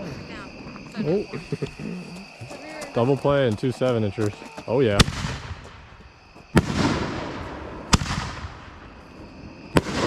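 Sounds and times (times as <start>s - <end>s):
firework bangs with echo: 5.0s - 9.0s, 9.6s - 10.0s.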